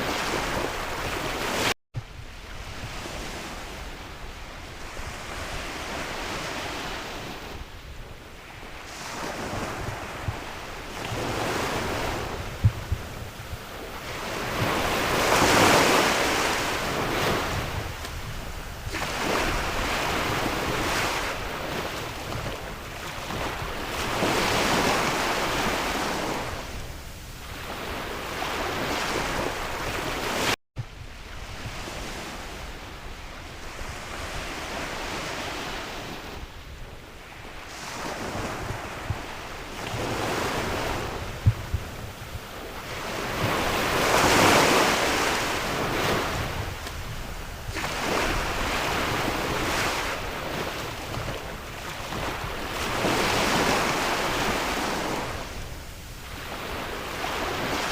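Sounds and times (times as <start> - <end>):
sea waves breaking on shore: 0.0 - 57.9
wind gusting across microphone: 0.0 - 57.9.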